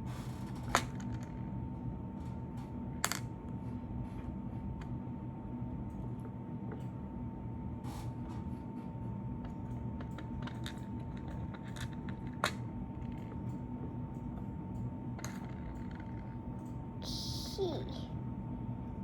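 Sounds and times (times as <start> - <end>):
faint high steady tone: 17.0 - 17.9.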